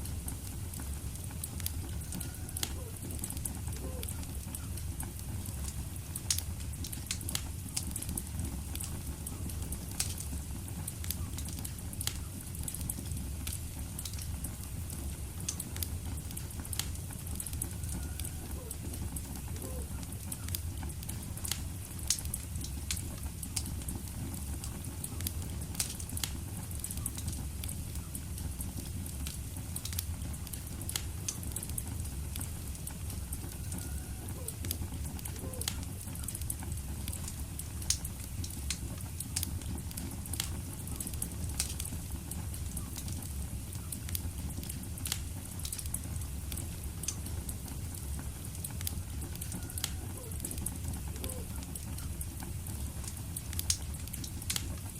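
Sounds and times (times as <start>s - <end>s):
burning logs crackling and popping: 0.0s - 54.9s
low rumble of flame: 0.0s - 54.9s.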